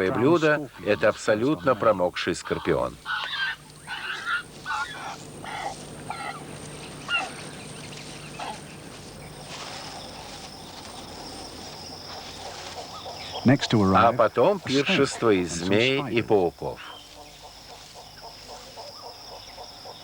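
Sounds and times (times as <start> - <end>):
hornbill calls and clicks: 2.5 - 13.9.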